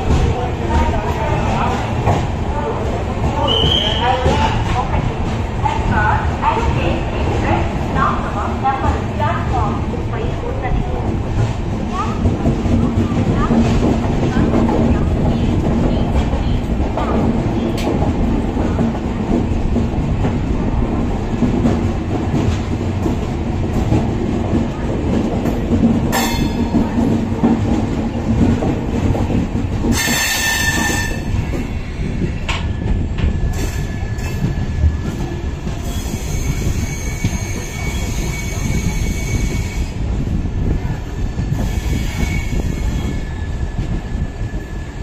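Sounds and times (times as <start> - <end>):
train wheels clattering on rails: 0.0 - 45.0
high wheel squeal: 35.8 - 39.7.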